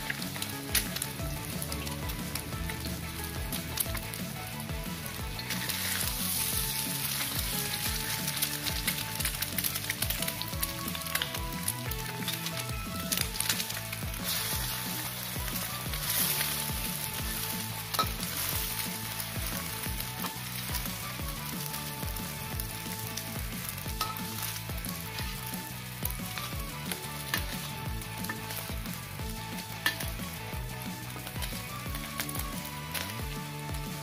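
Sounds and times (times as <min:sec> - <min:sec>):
egg sizzling in hot oil: 0:00.0 - 0:34.0
metal spatula scraping a pan: 0:12.1 - 0:19.6.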